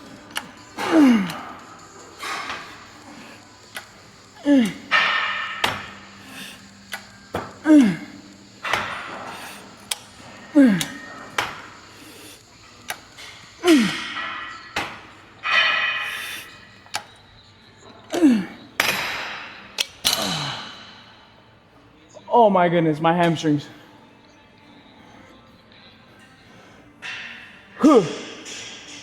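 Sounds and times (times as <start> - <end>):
man grunting: 0.8 - 1.6, 4.4 - 5.0, 7.6 - 8.2, 10.5 - 11.1, 13.6 - 14.2, 18.1 - 18.7, 27.8 - 28.4
hard noisy exhale: 16.0 - 16.6.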